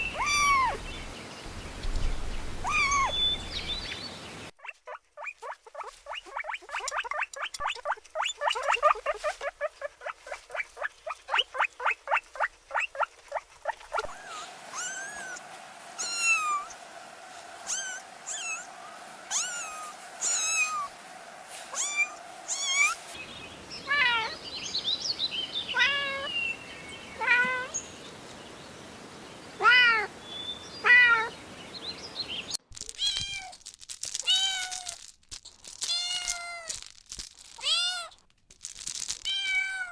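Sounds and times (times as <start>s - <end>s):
kittens mewing: 0.2s - 0.8s, 14.0s - 15.4s, 16.0s - 16.7s, 17.6s - 20.9s, 21.7s - 23.0s
steady hum: 14.0s - 23.8s.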